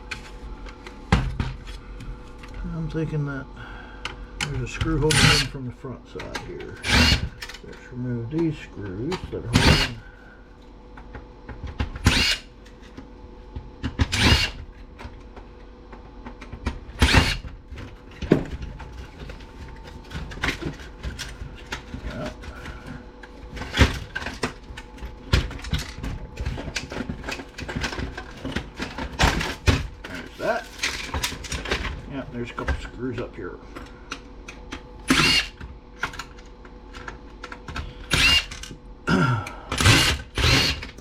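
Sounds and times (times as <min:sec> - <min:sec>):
power screwdriver spinning screws: 0:06.8 - 0:07.3, 0:09.6 - 0:09.9, 0:12.1 - 0:12.5, 0:14.1 - 0:14.6, 0:17.0 - 0:17.4, 0:35.1 - 0:35.6, 0:38.1 - 0:38.5, 0:39.8 - 0:41.0
metal and plastic parts rattling: 0:23.5 - 0:33.3.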